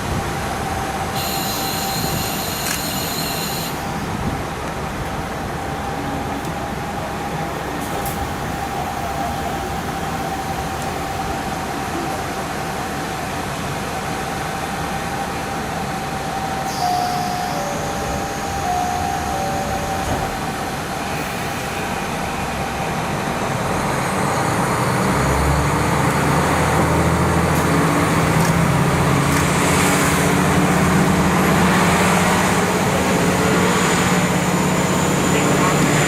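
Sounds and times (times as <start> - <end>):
diesel engine drone: 0.0 - 36.0
train running noise: 0.0 - 36.0.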